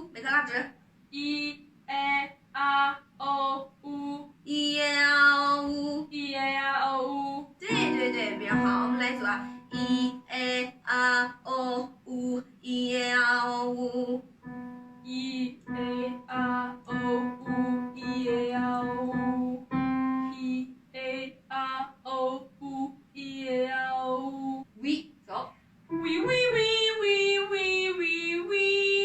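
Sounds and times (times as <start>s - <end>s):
woman singing: 1.2s - 14.3s, 15.0s - 25.0s, 25.9s - 29.0s
soft instrumental accompaniment: 7.7s - 10.3s, 14.4s - 15.1s, 18.9s - 20.3s, 25.9s - 26.8s.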